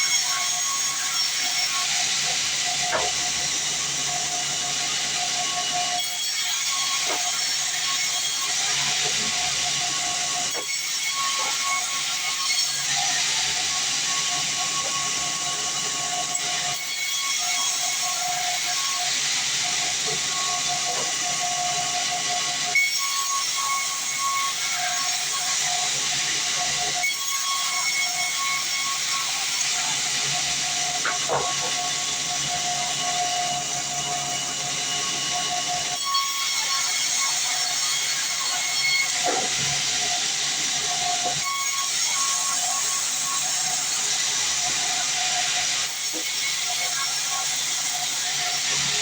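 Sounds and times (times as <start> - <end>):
band saw cutting log: 0.0 - 49.0.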